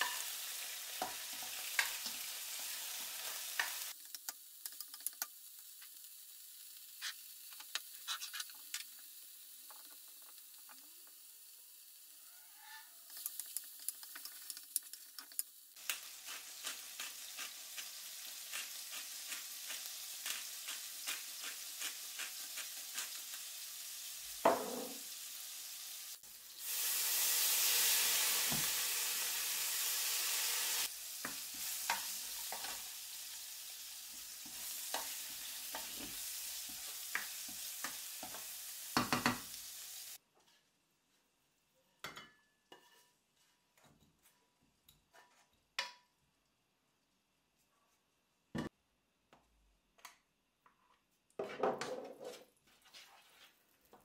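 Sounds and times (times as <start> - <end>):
shrimp sizzling in hot oil: 0.0 - 40.2
spatula scraping a pan: 7.0 - 8.8, 31.2 - 32.9, 34.1 - 38.5, 42.7 - 45.5, 51.4 - 54.0
liquid hissing in a hot pan: 15.6 - 40.2.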